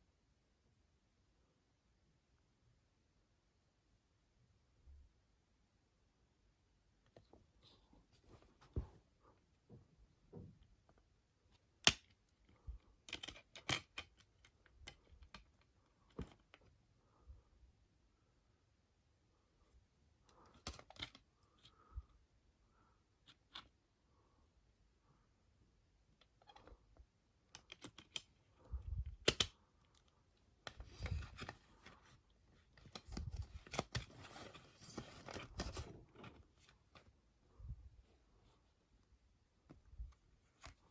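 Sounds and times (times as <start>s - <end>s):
cd packaging clicks and taps: 29.2s - 29.5s.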